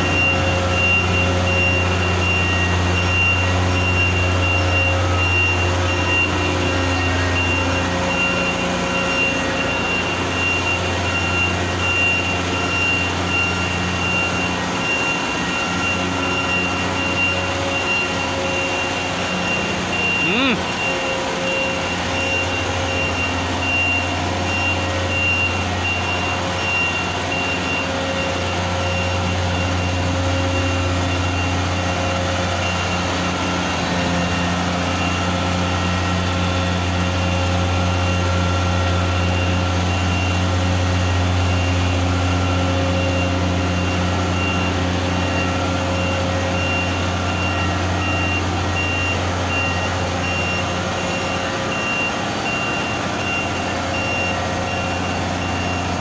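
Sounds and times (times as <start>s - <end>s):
high-pitched warning beeper: 0.0s - 27.9s
drill rig engine drone: 0.0s - 56.0s.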